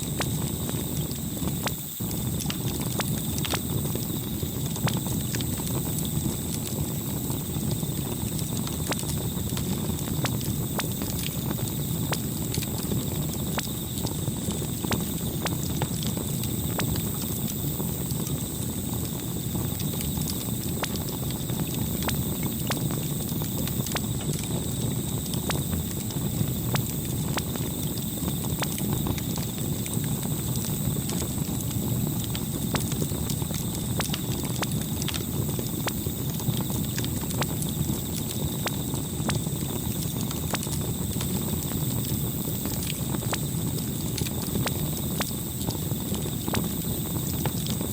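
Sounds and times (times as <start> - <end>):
campfire crackling and popping: 0.0 - 47.9.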